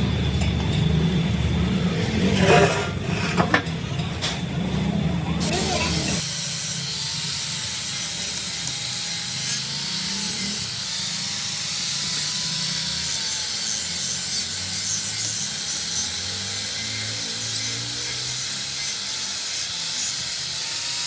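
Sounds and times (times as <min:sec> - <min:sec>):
steady machine noise: 0:00.0 - 0:06.2.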